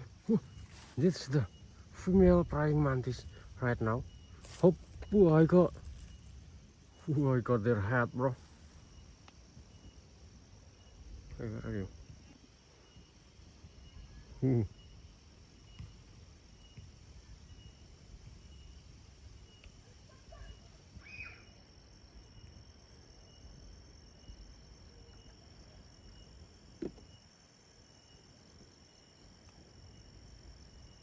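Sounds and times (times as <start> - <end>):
small rustles and ticks: 0.0 - 11.4
insects chirring: 0.0 - 31.0.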